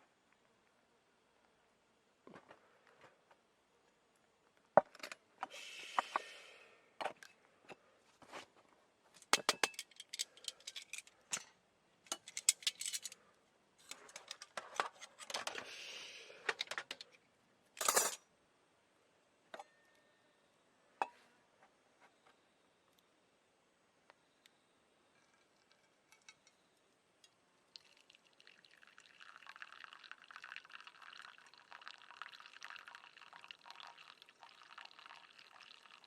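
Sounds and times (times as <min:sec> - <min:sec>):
metal cookware clinking: 0:17.8 - 0:18.2.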